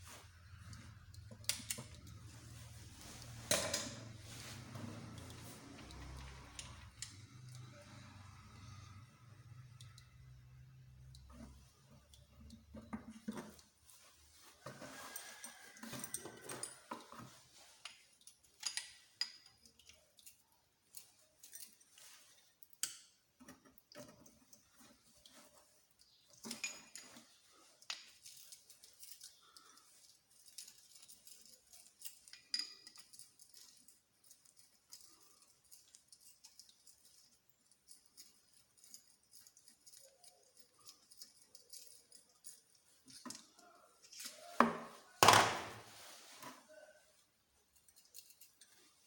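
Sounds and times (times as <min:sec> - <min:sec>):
metal parts clinking: 0:10.9 - 0:45.9, 0:47.6 - 0:49.0.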